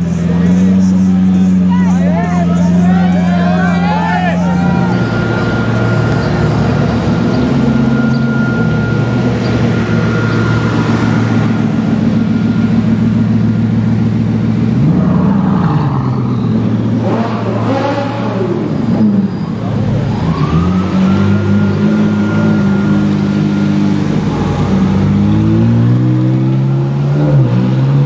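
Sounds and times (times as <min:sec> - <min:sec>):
car engine at low revs: 0:00.0 - 0:28.0
engine revving: 0:00.0 - 0:28.0.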